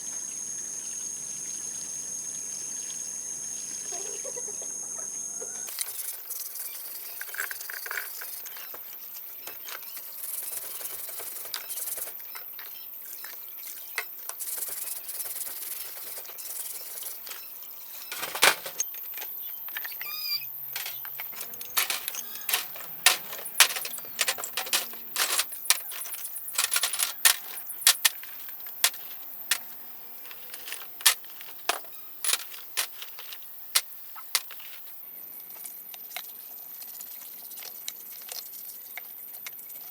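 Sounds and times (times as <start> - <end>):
sharp metallic clicks and clinks: 20.8 - 34.9.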